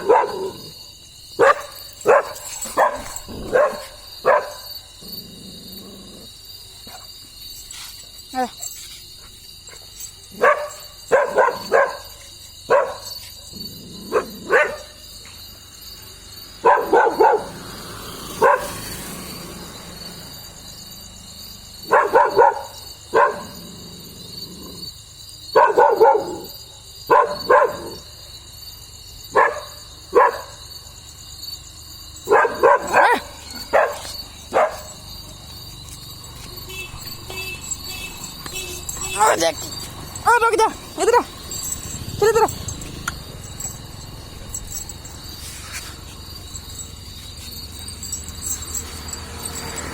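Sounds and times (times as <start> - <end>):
dog barking: 0.0 - 0.8, 1.4 - 4.8, 9.7 - 15.0, 16.6 - 19.0, 21.8 - 23.8, 25.5 - 28.2, 29.3 - 30.7, 32.2 - 35.4, 36.6 - 45.0
insects chirring: 0.0 - 49.9.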